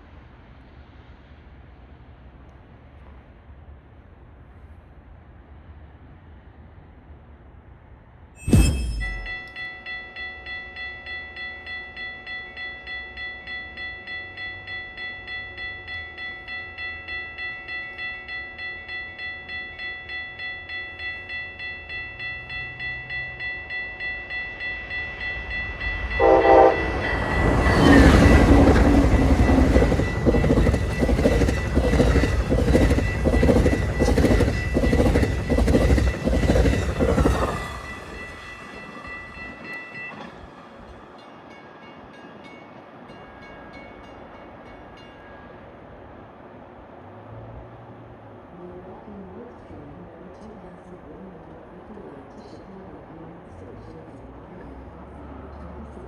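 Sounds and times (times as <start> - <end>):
crossing bell ringing: 8.4 - 45.8
train horn blast: 26.1 - 27.2
train wheels clacking over rails: 26.2 - 41.0.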